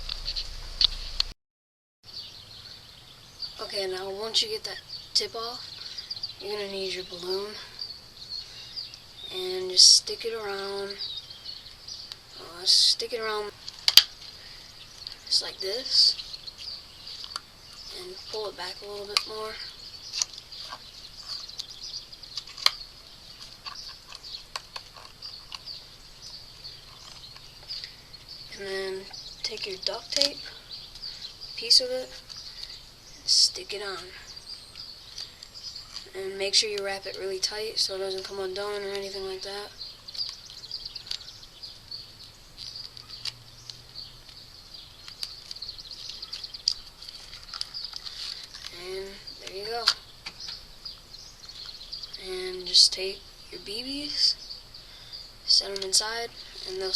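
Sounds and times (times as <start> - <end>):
high-pitched wildlife chirping: 38.7 - 56.9
sharp clicks: 40.1 - 44.4.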